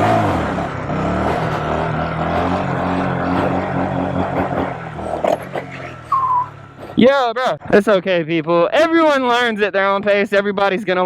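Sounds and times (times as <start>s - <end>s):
mini bike engine running: 0.0s - 7.0s.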